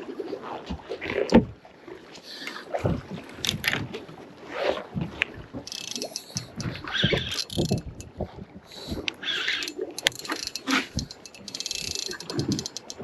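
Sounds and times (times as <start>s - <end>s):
knocks and rustling on a boat: 0.0s - 13.0s
wind on microphone: 4.8s - 13.0s.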